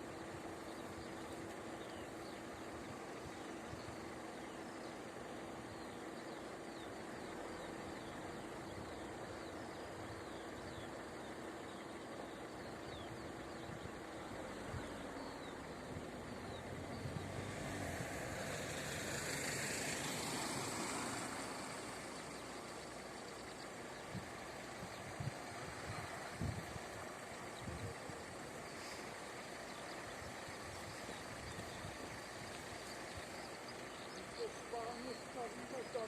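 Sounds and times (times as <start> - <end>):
birds chirping: 0.0 - 36.0
road vehicle passing by: 14.3 - 36.0
faint steady hum: 20.0 - 36.0.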